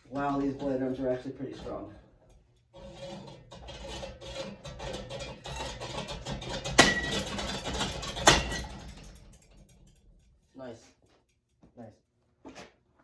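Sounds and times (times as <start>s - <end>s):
metal fan parts rattling: 0.0s - 10.6s
loud metallic impacts: 2.9s - 10.3s.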